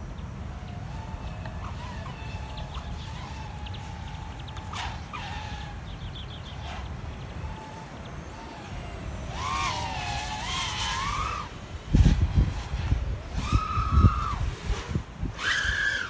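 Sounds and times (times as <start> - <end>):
low wind buffeting: 0.0 - 16.0
quadcopter propellers whining: 0.0 - 16.0.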